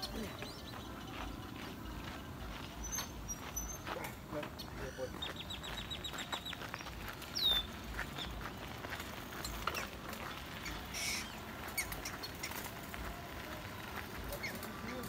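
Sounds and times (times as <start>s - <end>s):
bird chirps and ticks: 0.0s - 15.0s
faint outdoor background: 0.0s - 15.0s
rasping bird call: 10.6s - 12.6s.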